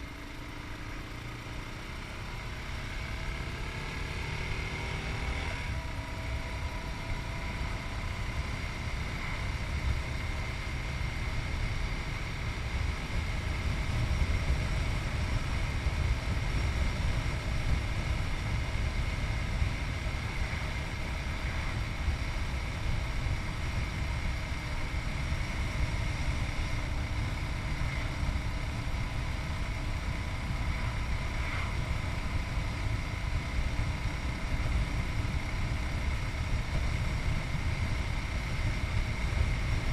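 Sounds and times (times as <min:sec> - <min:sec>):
motorcycle engine running: 0:00.0 - 0:39.9
wind rumble on microphone: 0:05.7 - 0:39.9.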